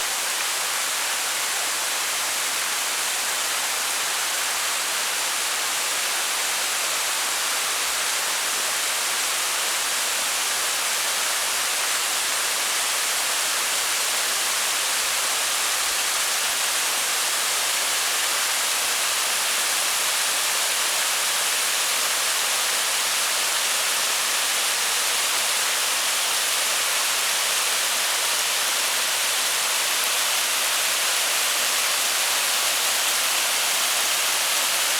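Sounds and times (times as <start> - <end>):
waterfall splashing into pool: 0.1 - 34.9.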